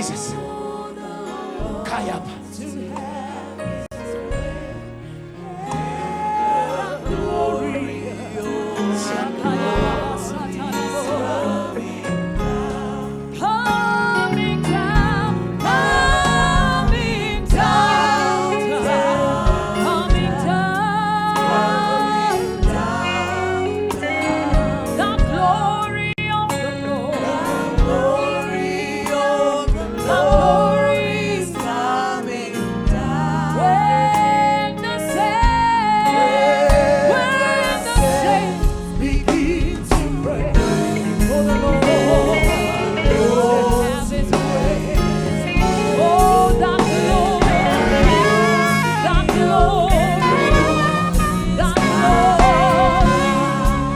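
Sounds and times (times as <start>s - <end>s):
gospel singing with vibrato: 0.0s - 53.9s
keyboard bass and drums: 36.7s - 53.9s.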